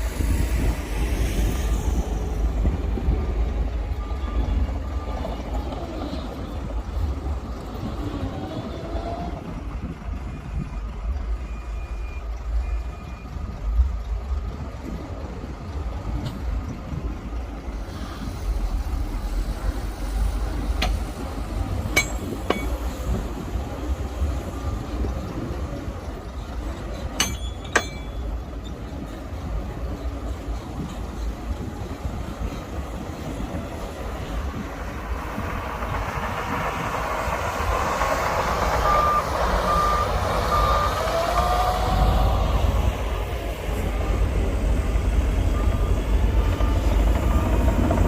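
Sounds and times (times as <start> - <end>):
diesel machinery rumbling: 0.0 - 48.0
faint short beeps: 10.3 - 13.5
sharp metallic clanks: 21.9 - 23.0, 27.0 - 28.4.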